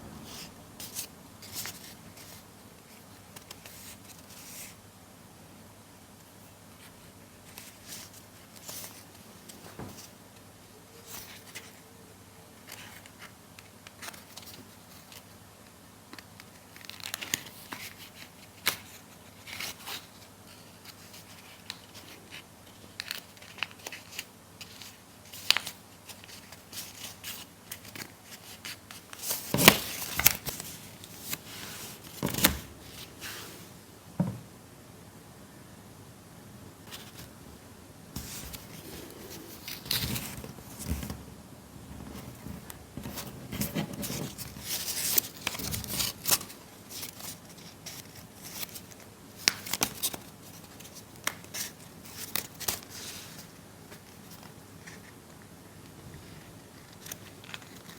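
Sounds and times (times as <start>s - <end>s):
paper rustling and crinkling: 0.2s - 4.8s, 12.6s - 33.6s, 36.8s - 37.4s, 38.2s - 57.9s.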